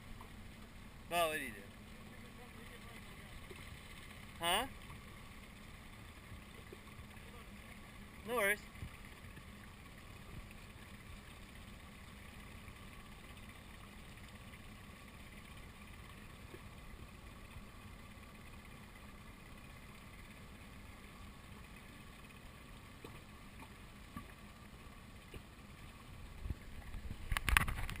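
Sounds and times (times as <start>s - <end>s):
muffled boat engine rumble: 0.0s - 28.0s.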